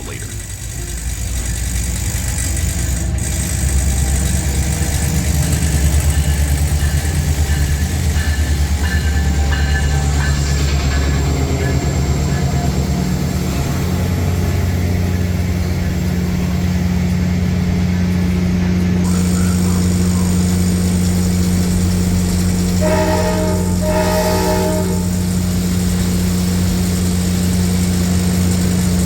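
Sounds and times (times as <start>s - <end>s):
diesel train engine drone: 0.0s - 29.0s
train horn chord: 22.4s - 26.2s.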